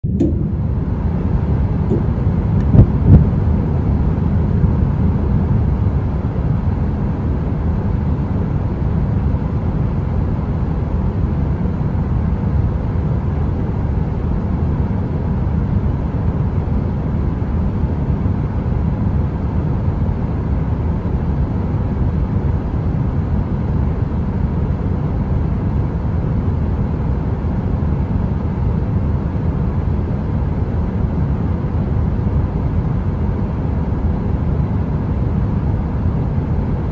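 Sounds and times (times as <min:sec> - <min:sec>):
deep rumbling brown noise: 0:00.0 - 0:36.9.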